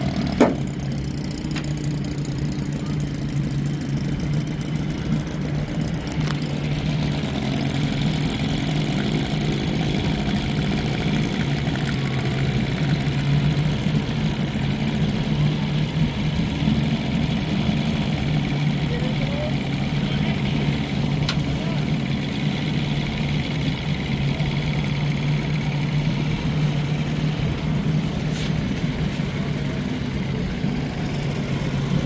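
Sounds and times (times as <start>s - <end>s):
outboard motor running: 0.0s - 32.0s.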